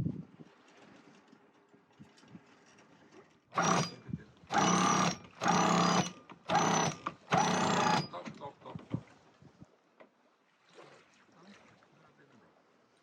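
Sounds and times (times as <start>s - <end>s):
small electric motor whirring: 3.6s - 8.2s.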